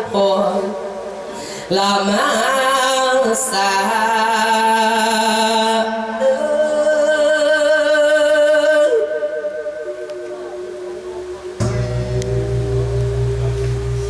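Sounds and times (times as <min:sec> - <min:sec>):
man chanting long sung notes: 0:09.0 - 0:14.0.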